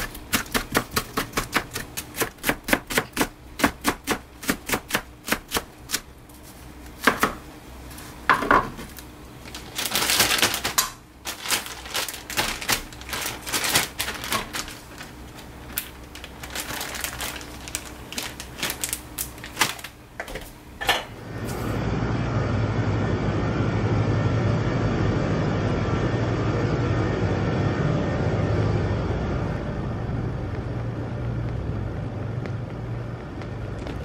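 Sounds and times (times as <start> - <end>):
kitchenware clicking and clattering: 20.2 - 21.2
low rumble like road noise: 21.2 - 34.0.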